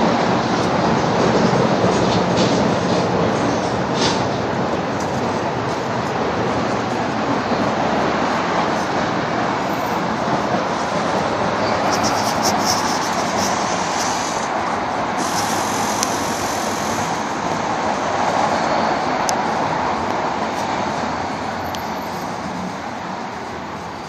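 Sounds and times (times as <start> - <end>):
rocket motor hissing: 11.9 - 14.6, 15.2 - 17.2.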